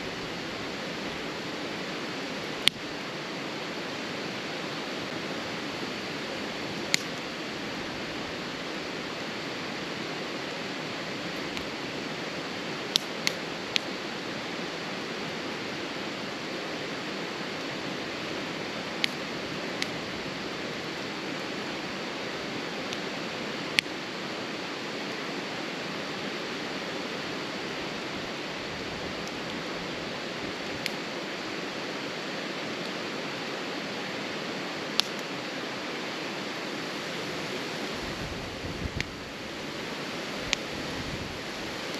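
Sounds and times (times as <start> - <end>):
wood fire popping and crackling: 4.8 - 9.0, 9.7 - 14.2, 17.4 - 24.0, 27.8 - 31.4, 34.8 - 35.3.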